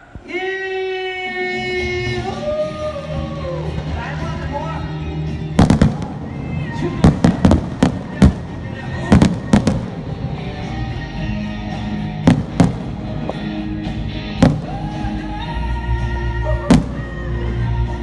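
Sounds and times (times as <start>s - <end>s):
music: 0.2s - 18.0s
fireworks bangs: 5.6s - 10.6s, 12.2s - 13.6s, 14.4s - 15.4s, 16.7s - 17.4s.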